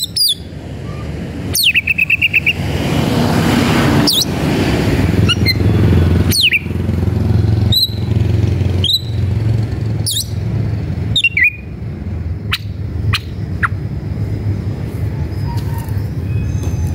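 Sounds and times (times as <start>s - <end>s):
bird sharp sweeping calls: 0.0s - 2.7s, 3.9s - 4.4s, 5.2s - 6.8s, 7.6s - 9.4s, 10.0s - 10.4s, 11.1s - 11.8s, 12.4s - 13.9s
steady low hum: 8.4s - 16.3s.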